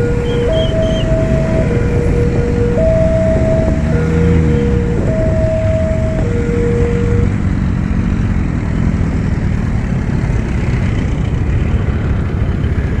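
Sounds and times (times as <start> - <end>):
two-pitch electronic tone: 0.1 - 1.9, 2.6 - 7.3.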